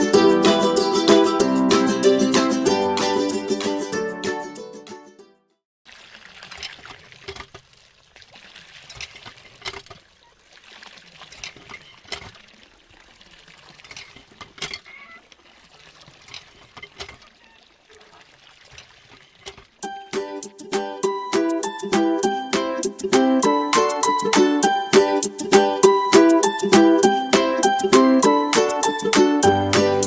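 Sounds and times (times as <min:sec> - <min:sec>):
liquid pouring and trickling: 0:05.9 - 0:20.6.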